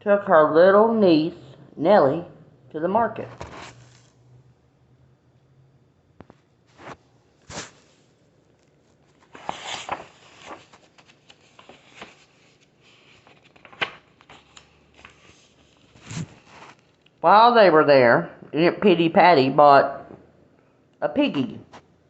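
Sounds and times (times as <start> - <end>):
paper pages rustling: 3.3 - 4.1, 6.2 - 17.1.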